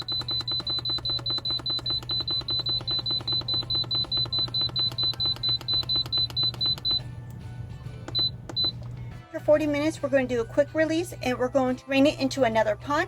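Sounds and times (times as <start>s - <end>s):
control panel beeping: 0.0s - 7.1s, 8.0s - 9.0s.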